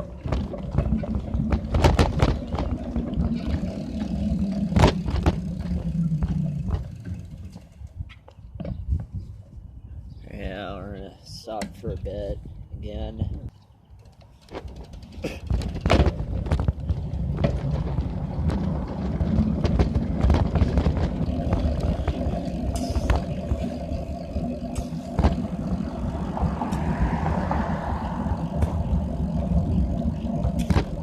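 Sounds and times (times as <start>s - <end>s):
tyres rumbling on road: 0.0s - 7.9s, 14.4s - 31.0s
bicycle clicks and rattles: 0.0s - 8.8s, 13.5s - 31.0s
wind on microphone: 6.5s - 10.2s, 11.8s - 13.5s, 24.4s - 31.0s.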